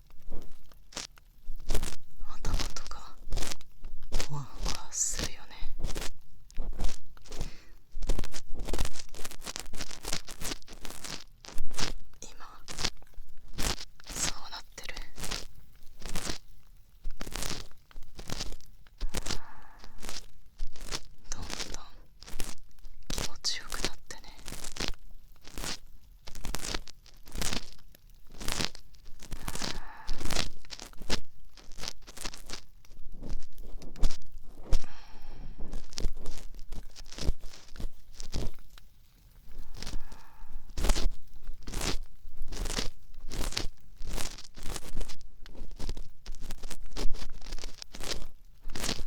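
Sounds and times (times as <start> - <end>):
ear pick scraping inside ear: 0.0 - 49.0.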